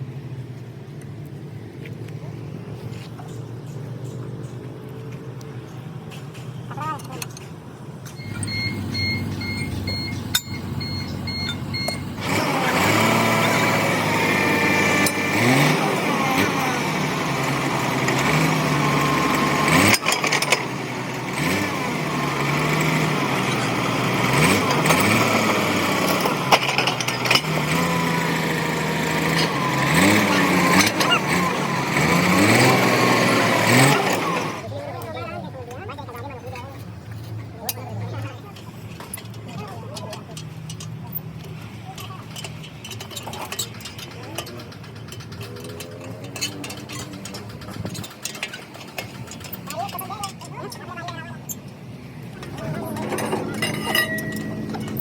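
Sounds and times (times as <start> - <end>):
repeated electronic beep: 8.2 - 12.1
heavy diesel engine revving: 8.2 - 34.8, 52.0 - 55.0.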